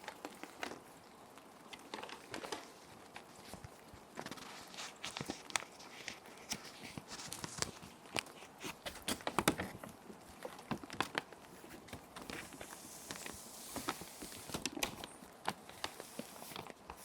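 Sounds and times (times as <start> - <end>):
plastic sheet protectors crinkling: 0.0 - 17.0
rain hissing: 11.3 - 17.0.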